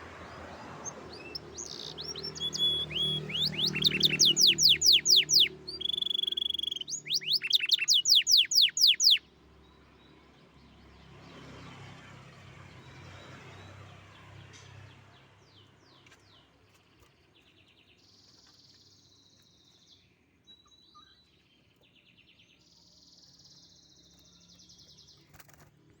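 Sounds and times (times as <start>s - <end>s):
canary singing: 0.0s - 9.3s.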